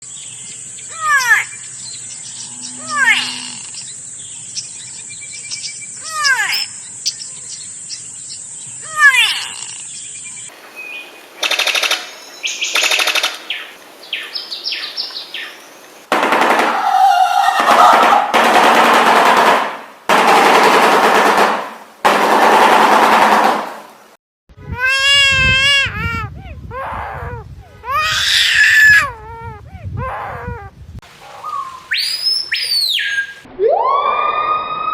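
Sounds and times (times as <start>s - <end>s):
high insect-like hiss: 0.1s - 16.1s
loud harsh bird calls: 0.7s - 8.0s, 8.7s - 18.4s, 27.9s - 29.0s, 31.2s - 33.5s
hawk screaming: 2.8s - 3.8s, 8.9s - 9.8s, 16.7s - 18.4s
bird bill-clattering rattle: 11.4s - 13.7s.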